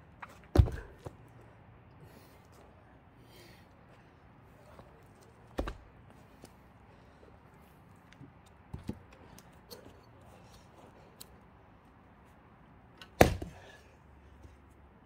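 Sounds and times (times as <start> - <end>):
axe striking log: 0.5 - 0.9, 5.6 - 5.8, 13.0 - 13.6.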